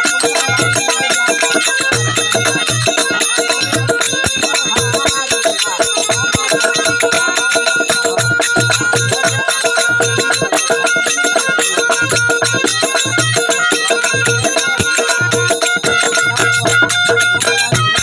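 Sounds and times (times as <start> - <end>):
dholak drum beats: 0.0 - 18.0
held melody notes: 0.0 - 18.0
jingling hand cymbals: 0.0 - 18.0.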